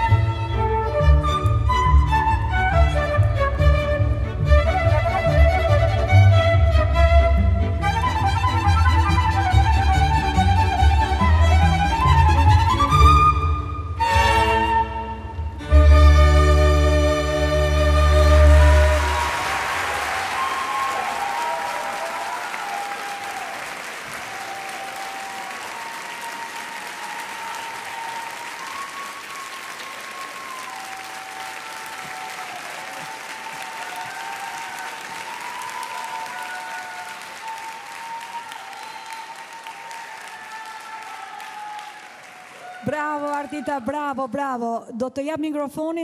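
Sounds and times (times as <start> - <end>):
audience applauding: 17.4 - 44.0.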